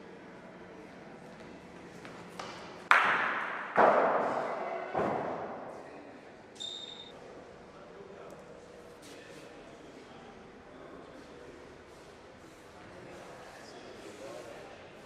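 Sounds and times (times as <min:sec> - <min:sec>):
short high beep: 0:06.6 - 0:07.1.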